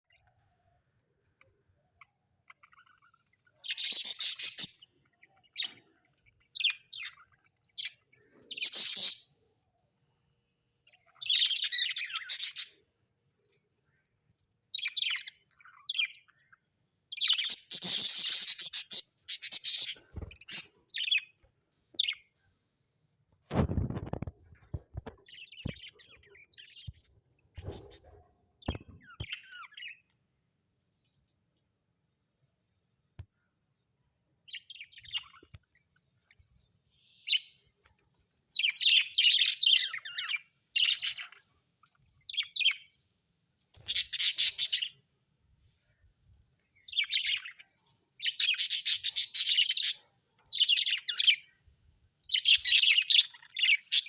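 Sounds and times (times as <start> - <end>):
budgerigars chirping: 2.4 - 9.4, 10.9 - 12.8, 14.7 - 16.5, 17.1 - 21.3, 38.6 - 43.0, 43.8 - 45.0, 46.9 - 51.5, 52.3 - 54.0.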